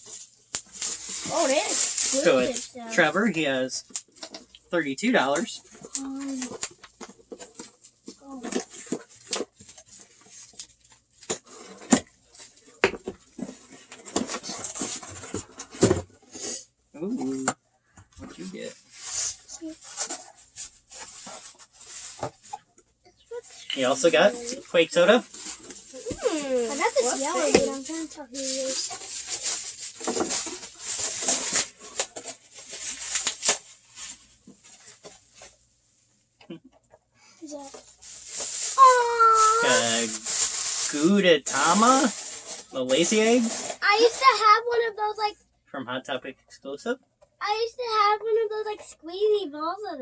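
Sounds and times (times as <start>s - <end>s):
packaging rustling: 23.8s - 35.5s, 37.5s - 44.4s.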